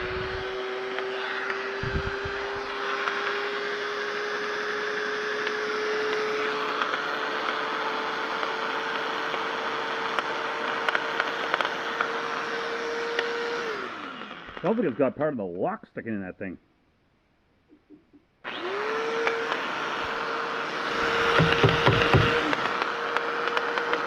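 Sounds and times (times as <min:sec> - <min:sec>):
grinder rubbing noise: 0:00.0 - 0:07.6, 0:17.8 - 0:24.0
angle grinder motor whine: 0:00.0 - 0:15.2, 0:18.4 - 0:24.0.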